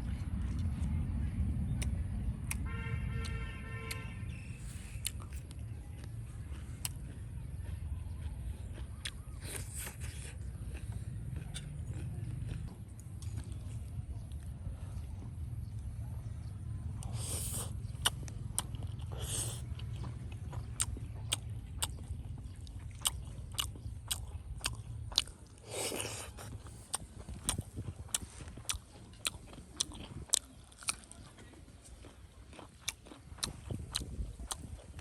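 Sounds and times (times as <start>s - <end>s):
chewing with wet clicks: 0.0s - 35.0s.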